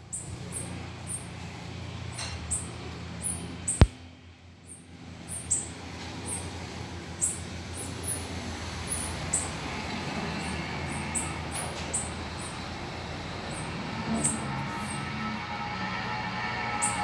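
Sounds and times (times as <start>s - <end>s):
small birds chirping: 0.0s - 4.0s, 4.6s - 15.0s.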